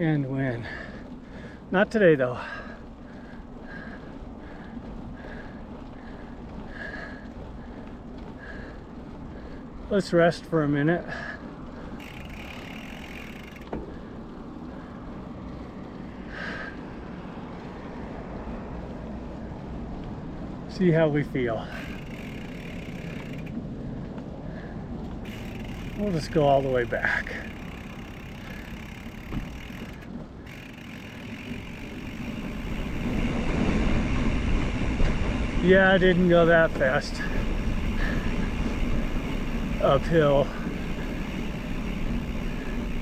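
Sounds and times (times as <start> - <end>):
road traffic rumble: 0.0 - 43.0
wind rumbling over microphone: 31.3 - 43.0.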